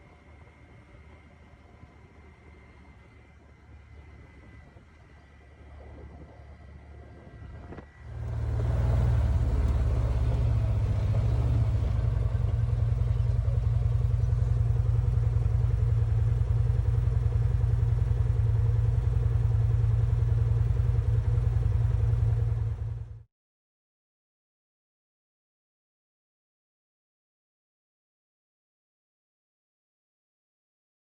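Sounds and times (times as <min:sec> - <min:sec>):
vehicle engine running: 0:00.0 - 0:23.3.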